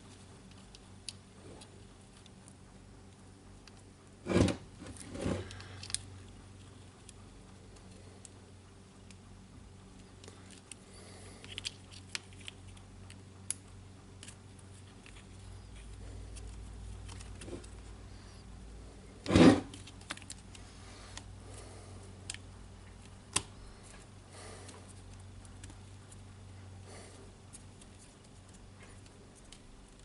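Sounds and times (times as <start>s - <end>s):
small parts clicking and rattling: 4.9s - 8.4s, 9.8s - 17.9s, 19.7s - 21.3s.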